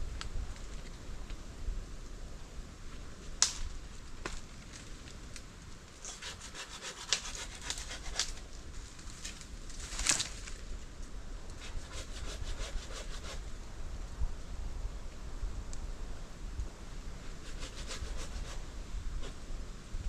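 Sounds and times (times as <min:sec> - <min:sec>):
hand saw cutting wood: 0:06.0 - 0:08.4, 0:11.6 - 0:13.4, 0:17.4 - 0:18.6.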